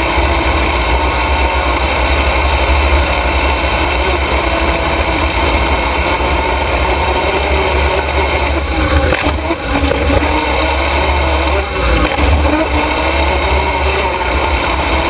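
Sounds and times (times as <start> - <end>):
race truck engine running: 0.0 - 15.0.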